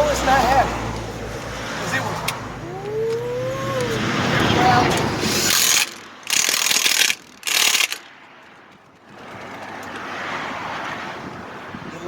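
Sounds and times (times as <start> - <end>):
ratchet wrench cranking: 4.9 - 8.1.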